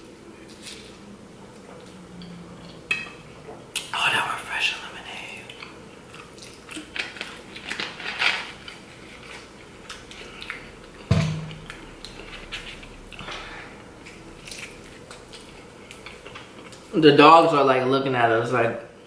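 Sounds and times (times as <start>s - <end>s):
biting and chewing food: 5.5s - 16.9s.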